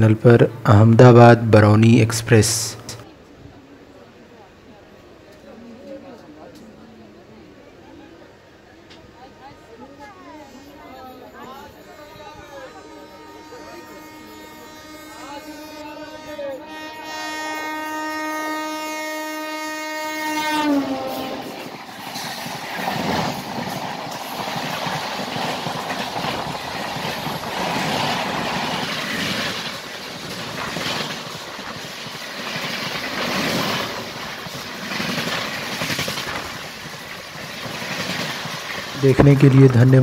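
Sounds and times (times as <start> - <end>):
train horn blast: 11.1 - 22.3
train coaches rushing past: 19.5 - 40.0.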